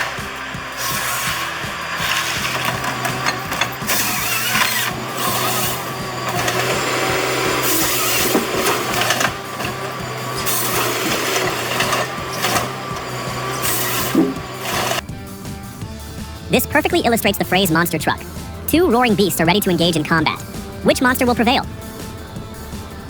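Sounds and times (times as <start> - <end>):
machine humming and clattering: 0.0 - 15.0.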